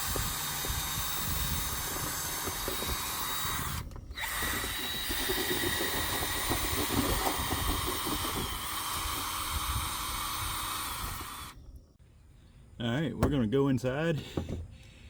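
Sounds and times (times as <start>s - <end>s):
drill spinning brush in duct: 0.0s - 11.6s.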